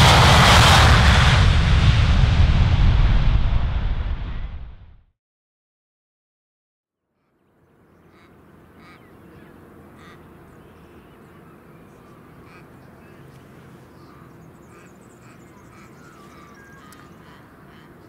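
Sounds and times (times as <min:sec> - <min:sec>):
low rumble: 0:00.0 - 0:05.1
short repeated bird calls: 0:08.0 - 0:18.0.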